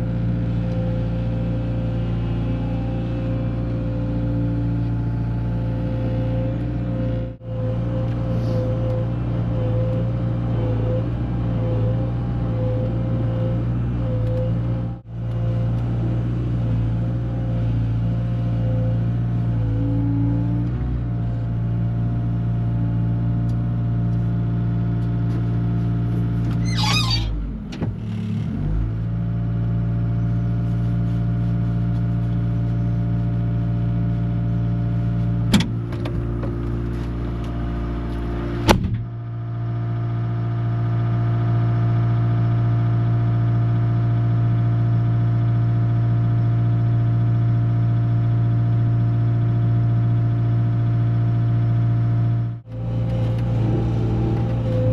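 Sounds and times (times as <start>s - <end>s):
loader engine running: 0.0s - 54.9s
high squeal: 26.6s - 27.4s.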